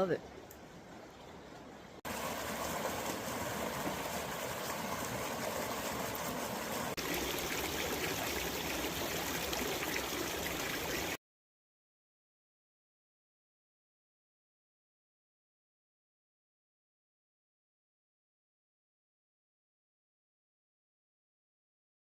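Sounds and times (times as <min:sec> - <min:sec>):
small waterfall splashing: 0:02.0 - 0:11.2.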